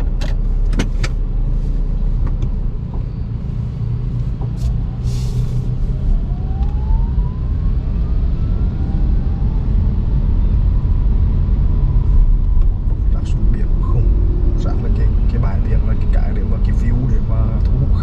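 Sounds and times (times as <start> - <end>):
road and tyre rumble: 0.0 - 18.0
brief hiss: 5.0 - 5.7.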